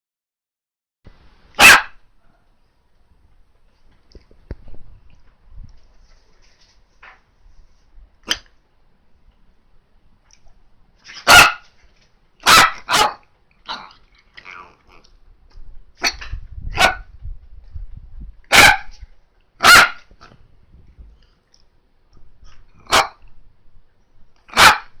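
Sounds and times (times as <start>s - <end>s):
small dog barking: 1.5s - 2.6s, 11.1s - 11.7s, 12.4s - 14.7s, 16.0s - 17.1s, 18.5s - 20.2s, 22.8s - 23.2s, 24.5s - 25.0s.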